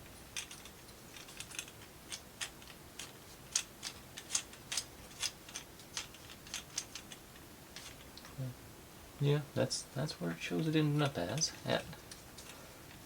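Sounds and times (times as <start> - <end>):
plywood parts clicking and tapping: 0.4 - 7.2.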